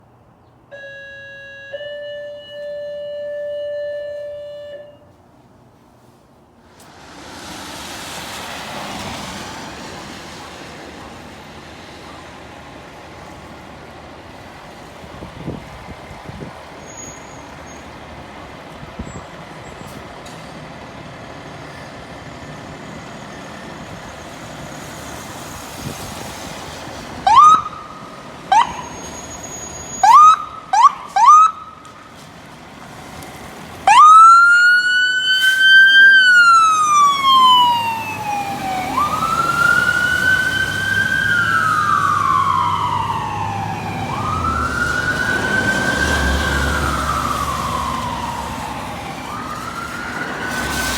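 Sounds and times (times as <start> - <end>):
road noise: 0.0 - 50.9
siren wail: 0.7 - 5.1, 27.2 - 31.9, 33.8 - 50.9
siren yelps: 0.7 - 5.1, 27.2 - 31.8, 33.9 - 50.9.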